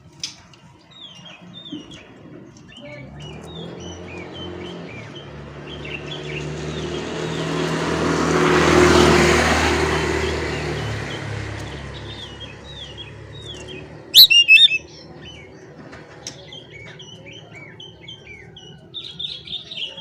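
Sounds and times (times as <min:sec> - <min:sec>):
bird singing whistles: 0:14.2 - 0:14.9
loud sharp bird notes: 0:14.2 - 0:15.0.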